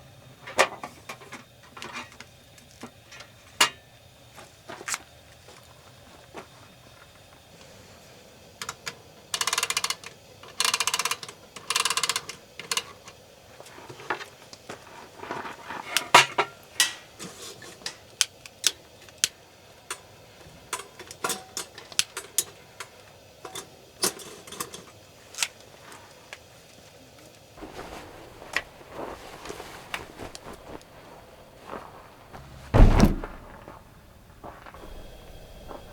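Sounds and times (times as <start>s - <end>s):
utensils clinking on cookware: 20.7s - 24.9s.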